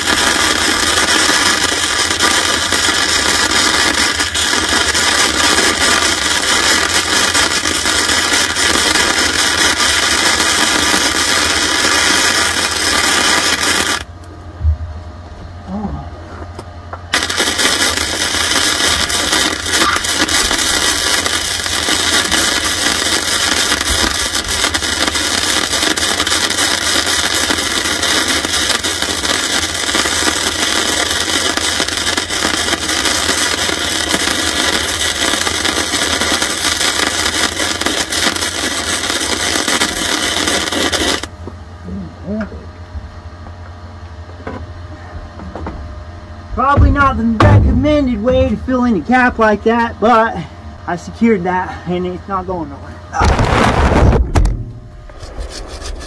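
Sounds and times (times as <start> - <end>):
welding arc burning: 0.0 - 14.2, 17.1 - 41.4, 46.6 - 51.5
low hum: 13.6 - 25.3, 41.3 - 56.0.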